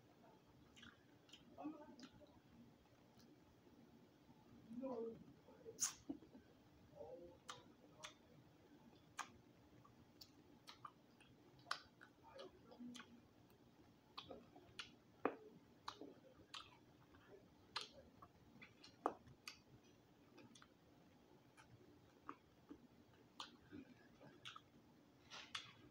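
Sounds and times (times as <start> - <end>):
lip smacks: 0.6 - 2.3, 5.8 - 6.3, 21.5 - 25.9
chewing crunches and clicks: 0.6 - 3.4, 8.9 - 25.9.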